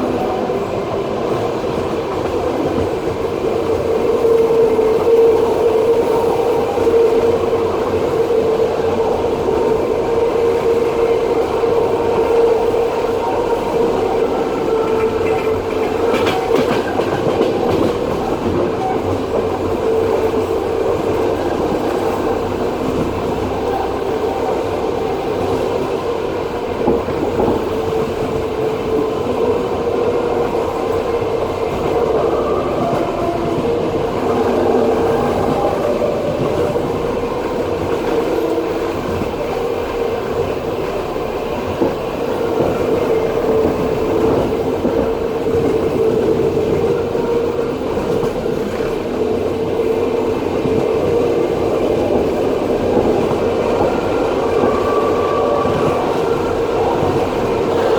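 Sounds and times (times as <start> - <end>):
train wheels rolling on rails: 0.0 - 57.9.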